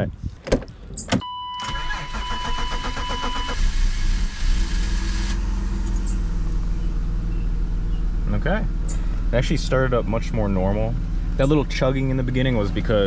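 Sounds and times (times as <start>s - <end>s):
engine starter cranking: 1.6s - 6.2s
car engine running: 3.6s - 13.0s.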